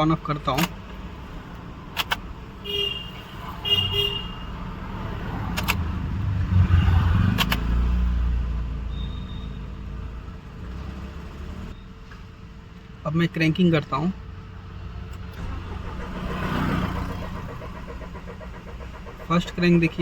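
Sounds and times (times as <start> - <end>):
ignition switch clicks: 1.5 - 2.3, 5.5 - 5.8, 7.3 - 7.7.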